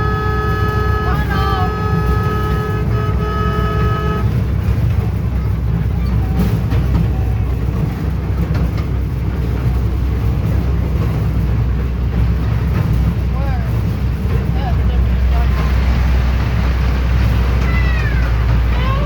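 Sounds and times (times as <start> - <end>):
train horn chord: 0.0 - 4.6
train rumbling: 0.0 - 19.0.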